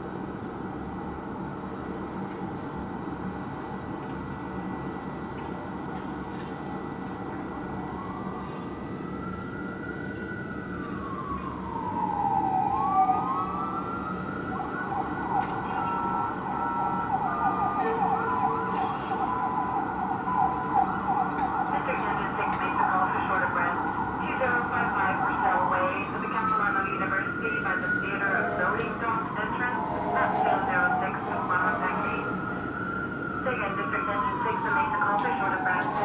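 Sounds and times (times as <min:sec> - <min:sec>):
siren wailing: 0:07.2 - 0:36.0
siren fast yelp: 0:11.1 - 0:36.0.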